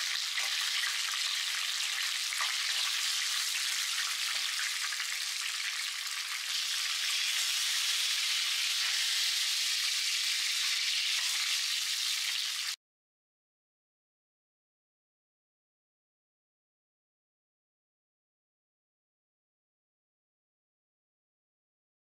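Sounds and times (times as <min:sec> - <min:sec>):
chicken frying in hot oil: 0:00.0 - 0:12.8.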